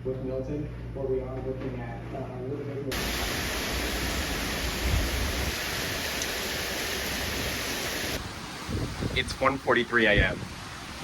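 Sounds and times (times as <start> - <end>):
heavy rain pouring: 2.9 - 11.0
wind: 2.9 - 11.0.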